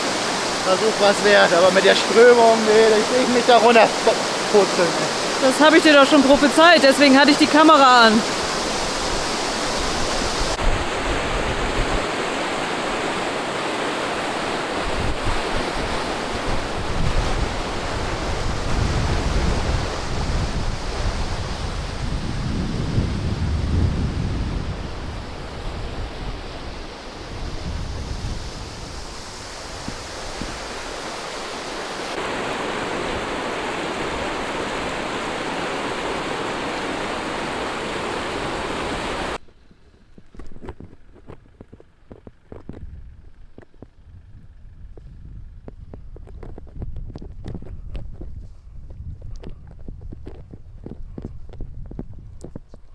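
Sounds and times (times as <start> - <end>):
river rushing: 0.0 - 23.4, 24.4 - 39.4
wind buffeting microphone: 0.0 - 39.4, 40.4 - 52.9.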